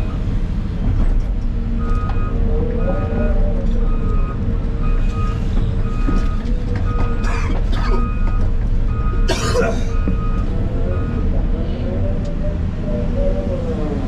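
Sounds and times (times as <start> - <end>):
diesel excavator running: 0.0 - 14.0
backup alarm beeping: 1.8 - 9.3, 9.9 - 11.3.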